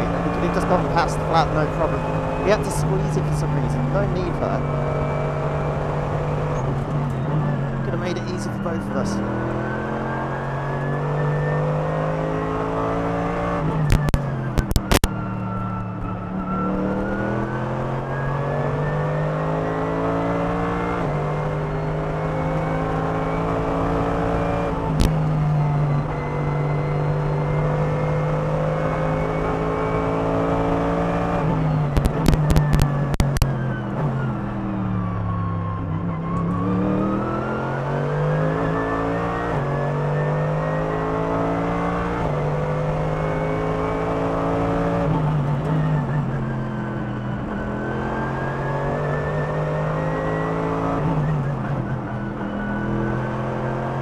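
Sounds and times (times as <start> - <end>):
car engine revving through gears: 0.0 - 54.0
sharp exhaust cracks: 13.9 - 18.3, 31.8 - 33.5.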